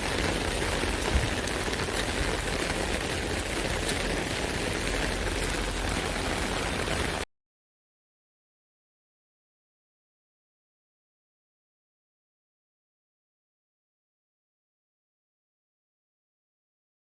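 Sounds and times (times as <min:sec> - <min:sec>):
rain on an umbrella: 0:00.0 - 0:07.3.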